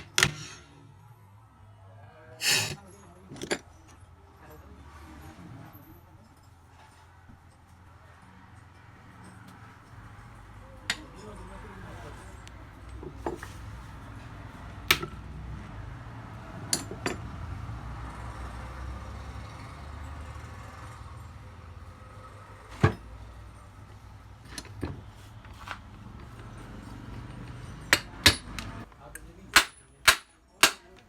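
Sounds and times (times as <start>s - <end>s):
hammer striking metal: 0.0s - 0.7s, 27.7s - 28.8s, 29.5s - 31.0s.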